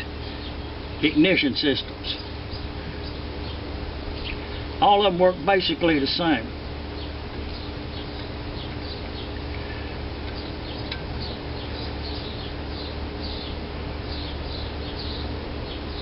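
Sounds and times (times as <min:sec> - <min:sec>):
small birds chirping: 0:00.0 - 0:16.0
steady low hum: 0:00.0 - 0:16.0.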